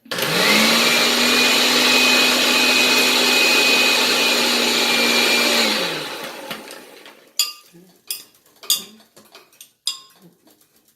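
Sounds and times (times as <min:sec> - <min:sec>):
blender motor humming and whining: 0:00.0 - 0:07.2.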